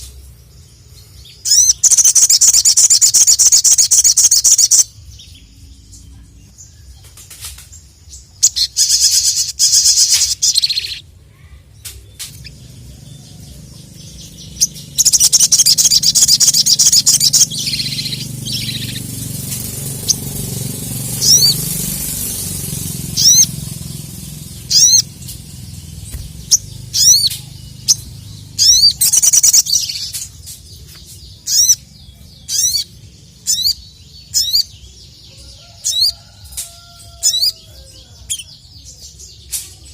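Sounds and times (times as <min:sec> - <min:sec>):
songbird trilling: 0:00.0 - 0:05.9, 0:08.2 - 0:11.1, 0:12.1 - 0:39.0
bird whistled rising notes: 0:19.6 - 0:23.7, 0:24.4 - 0:25.2.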